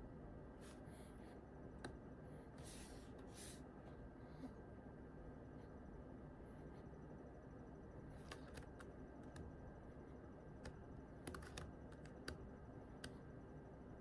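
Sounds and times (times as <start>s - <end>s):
computer keyboard keystrokes: 8.2s - 9.6s, 10.6s - 13.2s.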